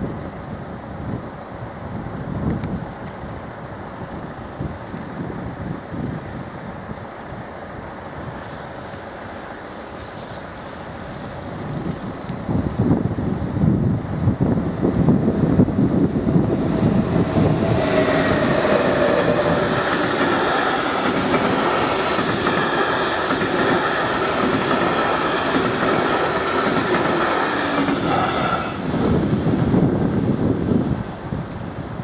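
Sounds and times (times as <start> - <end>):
train wheels on rails: 14.7 - 30.0.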